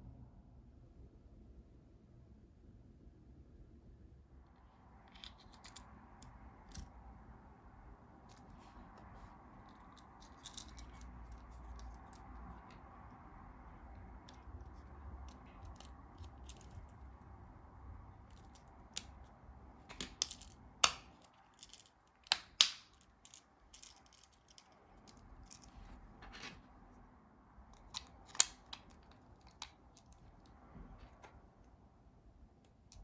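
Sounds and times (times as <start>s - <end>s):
plastic casing clicks and snaps: 22.2s - 24.3s.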